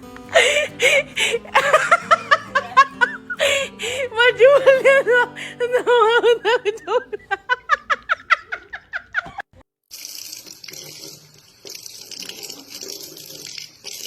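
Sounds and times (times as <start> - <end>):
water running from tap: 9.9 - 14.0.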